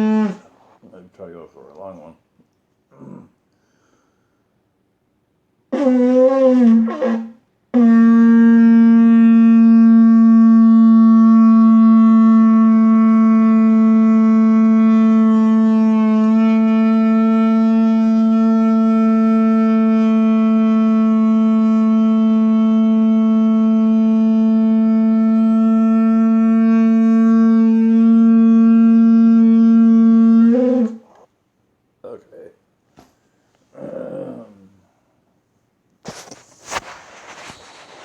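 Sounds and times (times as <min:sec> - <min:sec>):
shofar blasts: 0:00.0 - 0:00.5, 0:05.7 - 0:31.3.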